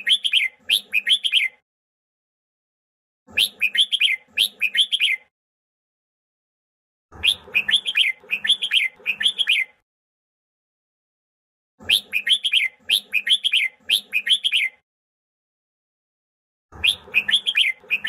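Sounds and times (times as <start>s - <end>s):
bird whistling song: 0.0s - 1.6s, 3.3s - 5.3s, 7.2s - 9.8s, 11.8s - 14.8s, 16.8s - 18.0s.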